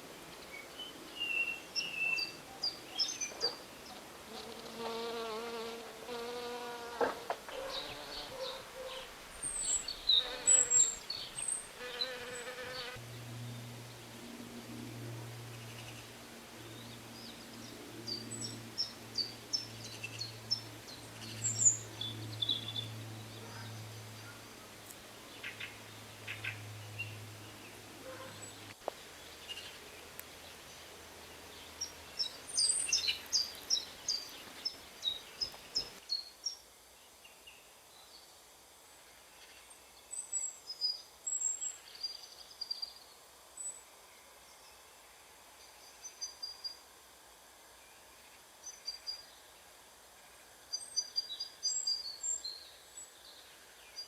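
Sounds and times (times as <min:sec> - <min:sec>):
insect buzzing: 0:04.3 - 0:08.7, 0:09.8 - 0:13.0
songbird chirping: 0:07.5 - 0:38.2.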